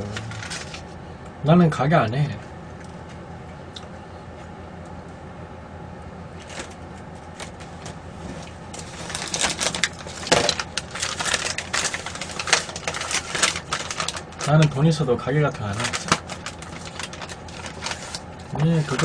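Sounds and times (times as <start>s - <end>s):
low steady hum: 0.0s - 19.0s
dense crackling and clicking: 8.7s - 14.8s, 15.4s - 19.0s.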